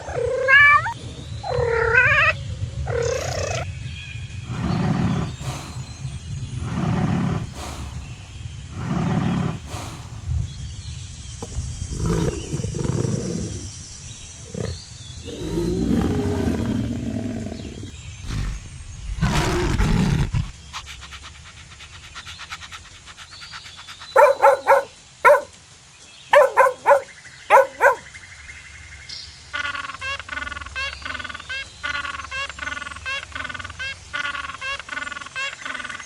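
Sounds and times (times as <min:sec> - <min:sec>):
lion roaring and growling: 0:04.5 - 0:10.5, 0:11.8 - 0:13.7, 0:14.4 - 0:20.9, 0:24.2 - 0:25.5, 0:26.3 - 0:28.0.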